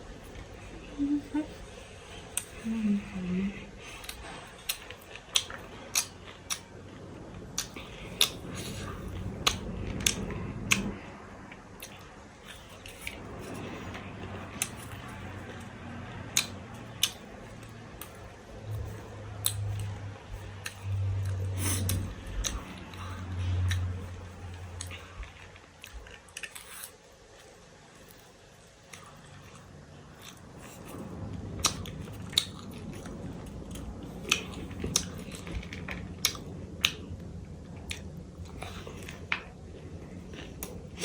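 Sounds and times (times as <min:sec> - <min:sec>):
low hum: 0:00.0 - 0:41.0
crunchy snack chewing: 0:03.8 - 0:37.2.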